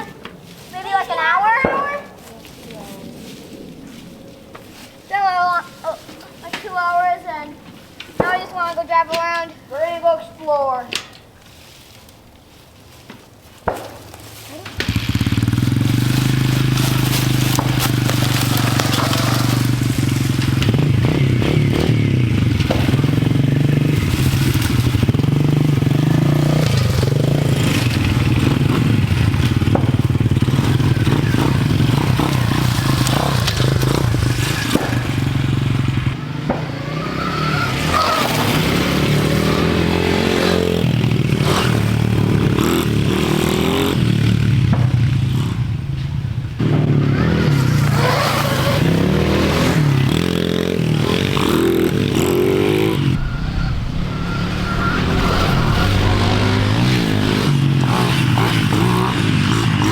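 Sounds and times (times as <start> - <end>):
dirt bike engine revving: 14.7 - 46.0, 46.6 - 59.9.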